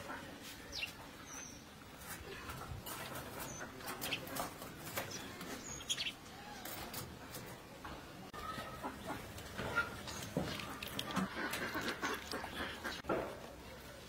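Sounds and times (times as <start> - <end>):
small birds chirping: 0.6 - 6.9, 8.3 - 13.1.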